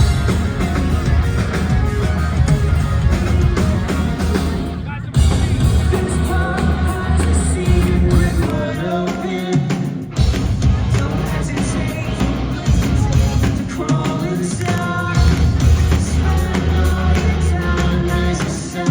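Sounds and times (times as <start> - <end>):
rock band playing live: 0.0 - 18.9
person singing: 5.3 - 10.0, 10.8 - 18.9.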